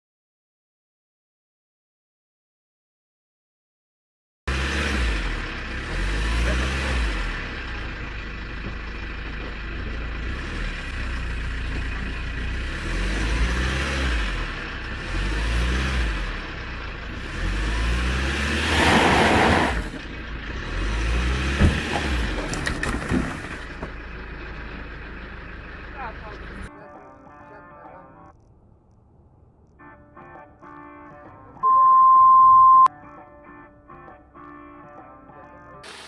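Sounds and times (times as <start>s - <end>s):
truck engine revving: 4.5s - 8.2s, 9.1s - 26.7s.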